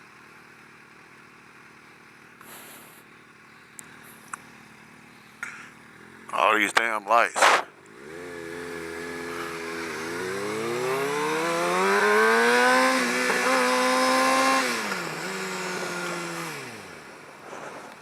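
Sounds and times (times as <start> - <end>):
motorcycle engine revving: 7.3 - 18.0.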